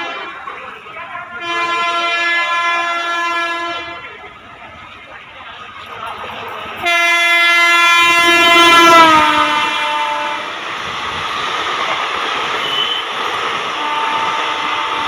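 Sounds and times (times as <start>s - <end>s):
train running by: 0.0s - 15.0s
electric train horn blast: 1.4s - 4.0s, 6.8s - 10.5s, 12.6s - 15.0s.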